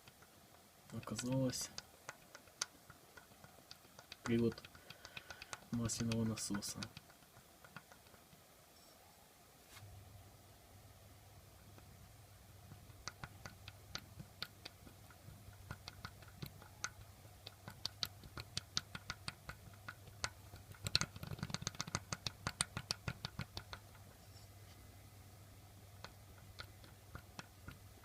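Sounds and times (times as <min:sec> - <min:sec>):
light metallic clicks and taps: 0:00.0 - 0:08.3.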